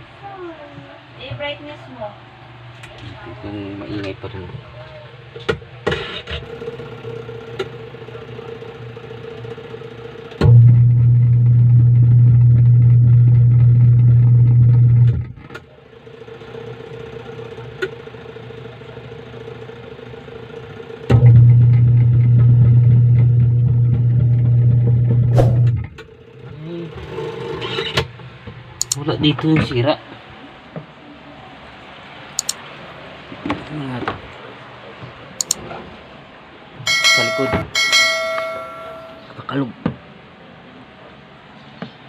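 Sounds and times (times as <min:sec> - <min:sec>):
washing machine motor drone: 0:02.2 - 0:28.7
clicks: 0:28.8 - 0:29.0, 0:32.4 - 0:32.6, 0:35.4 - 0:35.6.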